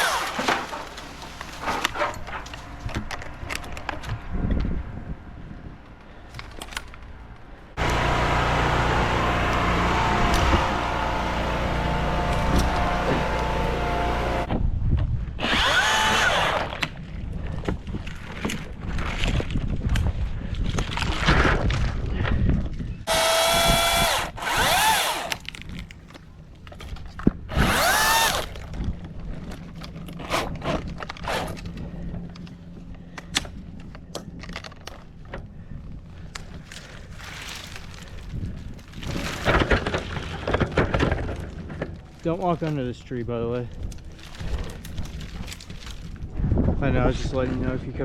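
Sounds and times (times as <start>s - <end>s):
power saw whining: 0.0s - 2.0s, 7.8s - 14.5s, 15.4s - 16.6s, 23.1s - 25.7s, 27.5s - 28.7s
engine hum: 0.0s - 14.5s, 23.1s - 26.8s, 27.5s - 43.0s.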